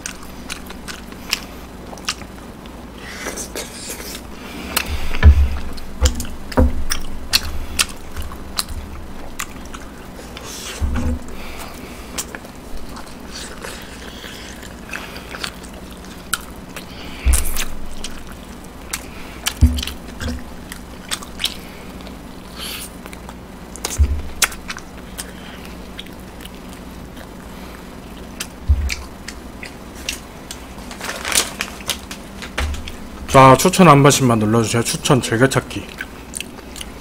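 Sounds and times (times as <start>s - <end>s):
gnawing and chewing ribs: 0.0s - 37.0s
dull thumps: 4.8s - 9.4s, 10.8s - 11.6s, 17.0s - 20.8s, 23.8s - 24.6s, 28.6s - 29.2s, 32.5s - 33.4s.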